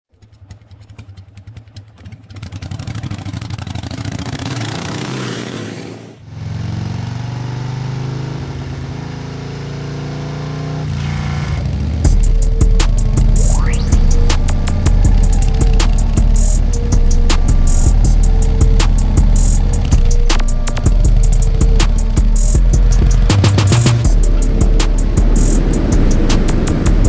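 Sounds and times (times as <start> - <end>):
motorcycle engine accelerating: 0.1 - 27.0
music with heavy beat: 12.0 - 27.0.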